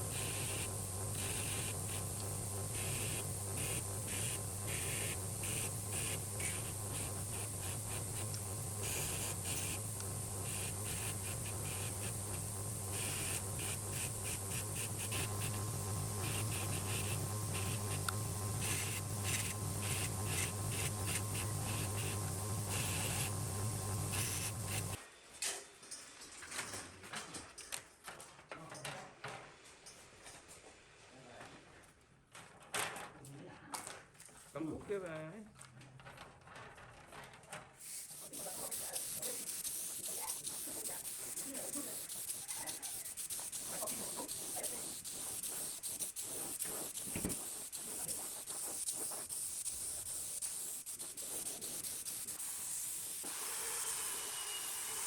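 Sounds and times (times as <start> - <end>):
power tool motor hum: 0.0 - 25.0, 38.0 - 55.0
scratchy strokes with hiss: 0.0 - 25.0, 37.8 - 55.0.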